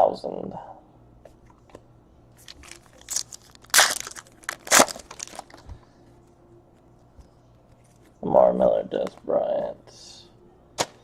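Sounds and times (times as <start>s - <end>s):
plastic wrapper crinkling: 2.4s - 5.7s.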